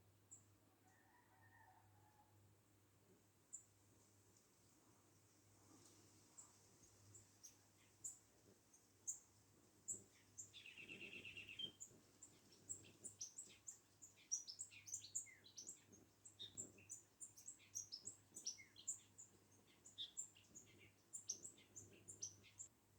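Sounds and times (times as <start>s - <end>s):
small bird chirping: 7.1s - 22.7s.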